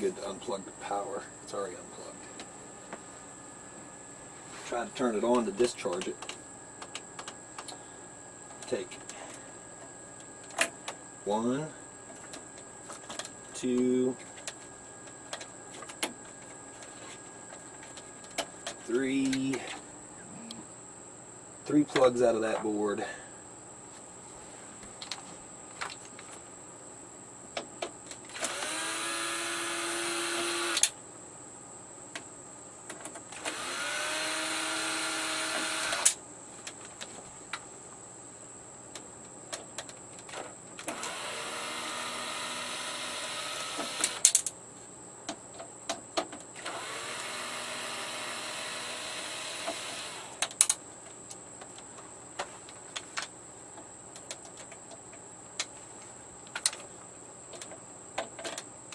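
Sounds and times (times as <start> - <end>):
electric screwdriver whining: 28.3 - 30.9, 33.4 - 36.2, 40.8 - 44.3, 46.6 - 50.4
clicks of screws and small parts: 44.0 - 44.6, 56.5 - 56.9.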